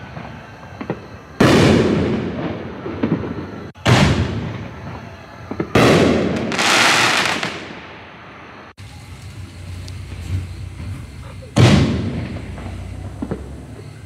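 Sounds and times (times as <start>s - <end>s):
firework shells bursting: 8.8s - 14.0s
hissing tail: 8.8s - 14.0s.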